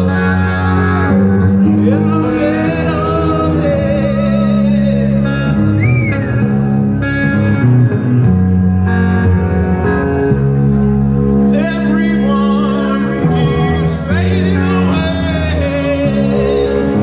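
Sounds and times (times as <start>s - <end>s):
electric guitars: 0.0s - 17.0s
person singing: 1.6s - 5.6s, 11.5s - 17.0s.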